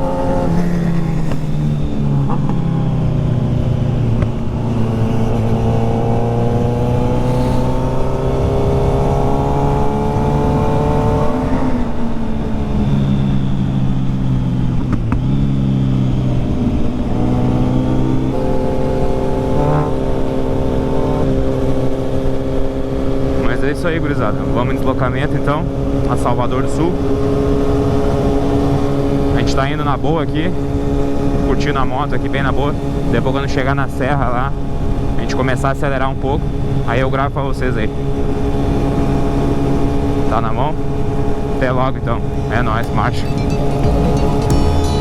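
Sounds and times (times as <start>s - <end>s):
wind and road noise: 0.0s - 23.5s.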